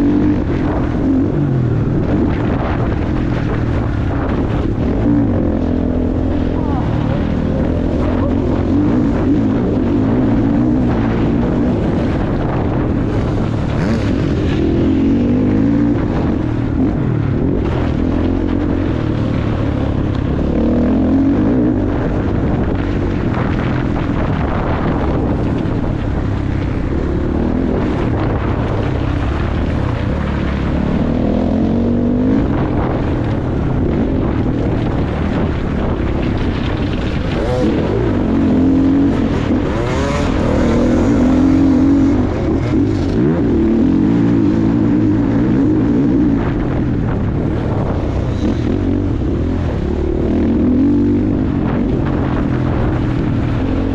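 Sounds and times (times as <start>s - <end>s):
motocross bike engine revving: 0.0s - 53.9s
wind noise: 0.0s - 53.9s.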